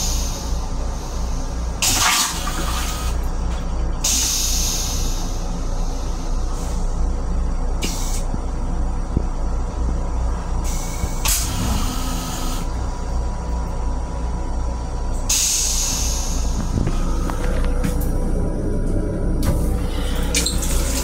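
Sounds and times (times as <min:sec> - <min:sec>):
railcar interior rumble: 0:00.0 - 0:21.0
air hiss: 0:04.0 - 0:06.8, 0:15.3 - 0:16.6.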